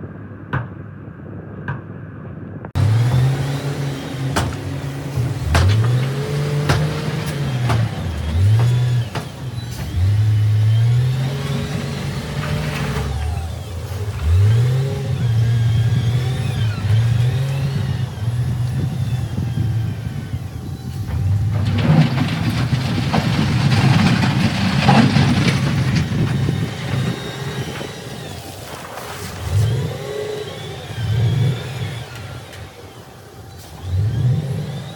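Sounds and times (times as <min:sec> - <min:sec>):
diesel engine revving: 0:02.8 - 0:34.9.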